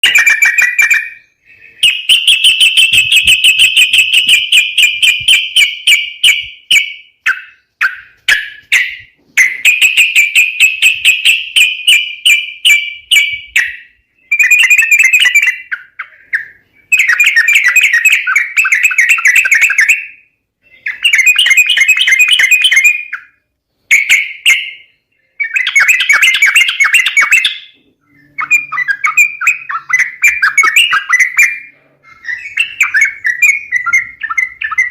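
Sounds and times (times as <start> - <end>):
bird chattering calls: 0.0 - 20.0, 23.9 - 34.9.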